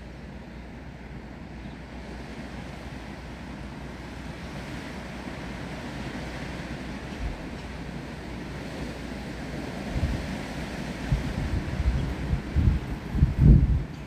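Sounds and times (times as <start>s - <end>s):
wind through trees: 0.0s - 14.0s
wind buffeting microphone: 6.9s - 7.8s, 8.6s - 14.0s.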